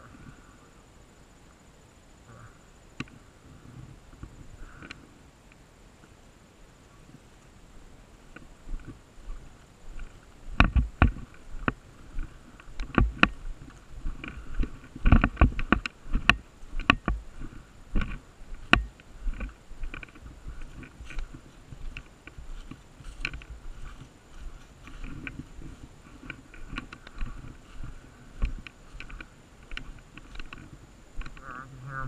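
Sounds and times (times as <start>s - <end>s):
sharp clicks and knocks: 10.0s - 17.2s, 18.0s - 24.0s, 26.2s - 31.5s.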